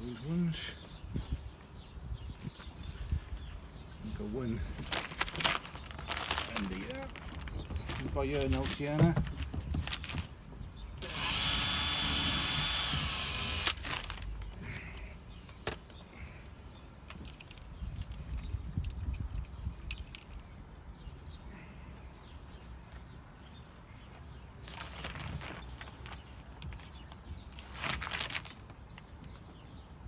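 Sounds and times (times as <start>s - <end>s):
power drill whining: 11.0s - 14.1s.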